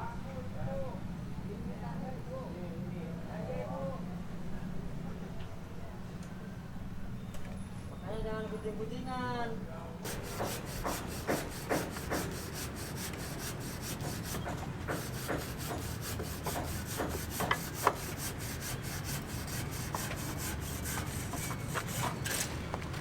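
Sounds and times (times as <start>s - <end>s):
rapid scraping strokes: 10.1s - 22.7s.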